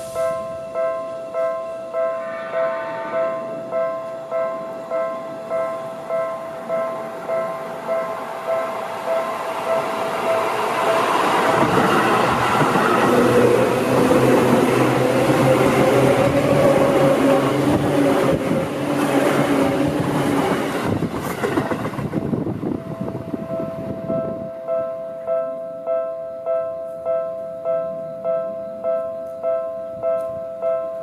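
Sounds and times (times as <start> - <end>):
two-tone crossing warning bell: 0.0 - 21.1, 22.3 - 31.0
train wheel and motor noise: 4.0 - 24.4.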